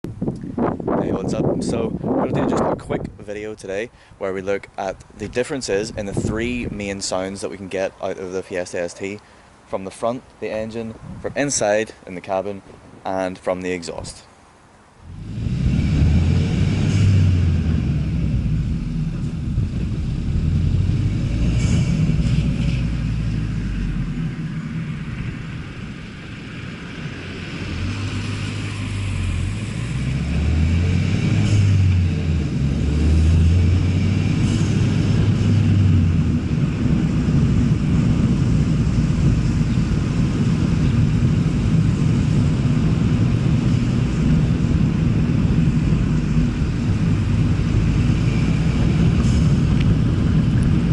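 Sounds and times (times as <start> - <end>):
car engine revving: 15.0 - 50.9.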